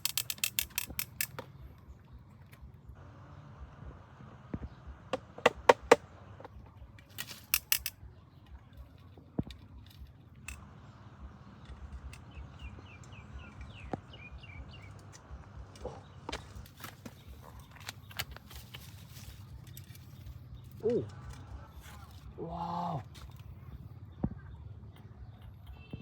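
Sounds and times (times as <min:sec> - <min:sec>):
low outdoor background: 0:00.0 - 0:26.0
bird chirping: 0:10.8 - 0:22.3.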